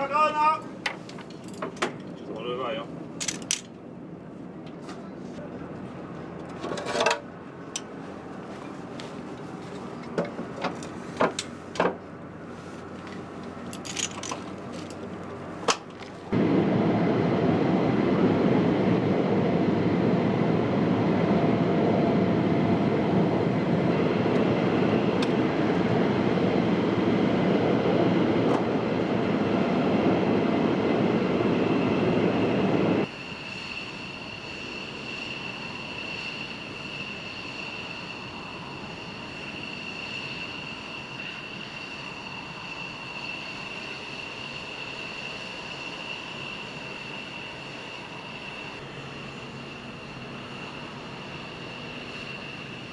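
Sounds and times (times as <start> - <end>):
high turbine whine: 16.2 - 52.9
loud rushing jet noise: 16.3 - 52.9.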